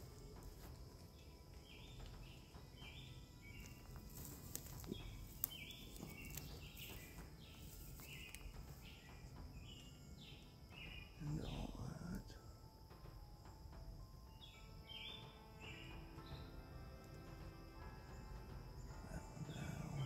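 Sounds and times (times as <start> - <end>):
bird raspy calls: 1.8 - 12.4.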